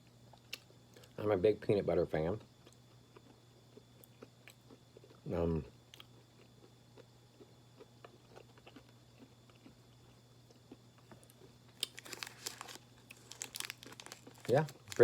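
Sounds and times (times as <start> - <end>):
chewing: 5.9 - 12.5
wrapper crinkling: 11.8 - 15.0.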